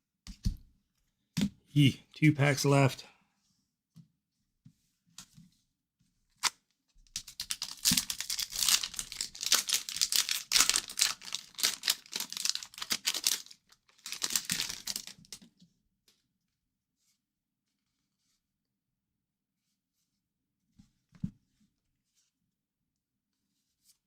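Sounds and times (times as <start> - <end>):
wrapper crinkling: 7.2 - 15.4.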